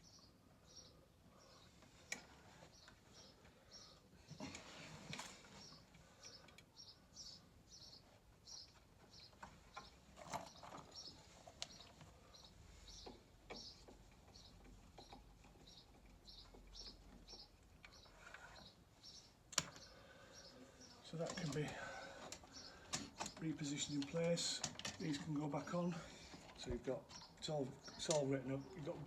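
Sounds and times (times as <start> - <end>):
small bird chirping: 0.0 - 4.0, 5.5 - 21.6, 22.5 - 24.3.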